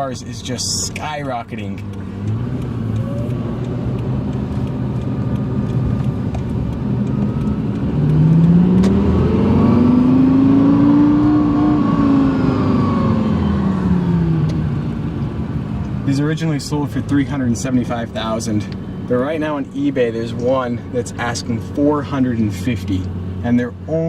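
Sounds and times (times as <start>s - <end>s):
car engine revving heard from cabin: 1.0s - 16.0s.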